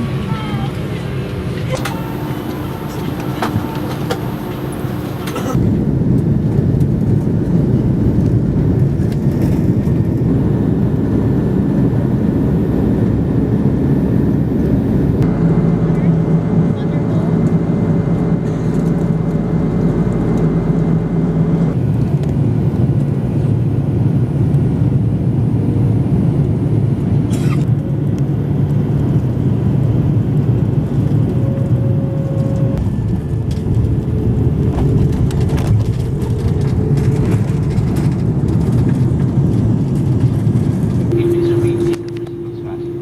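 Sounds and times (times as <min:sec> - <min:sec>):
jet engines rumbling in cabin: 0:00.0 - 0:43.0
steady hum: 0:01.2 - 0:06.0, 0:09.4 - 0:21.9, 0:30.5 - 0:43.0.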